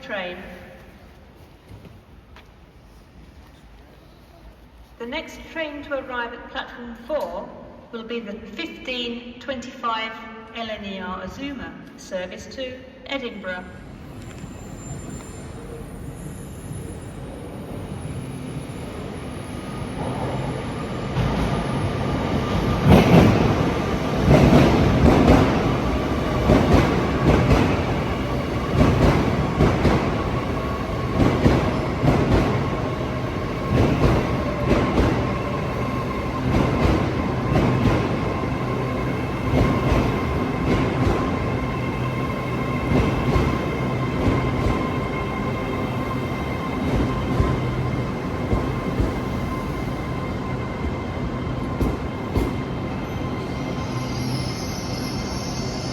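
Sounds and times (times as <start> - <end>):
train whine: 13.8 - 55.9.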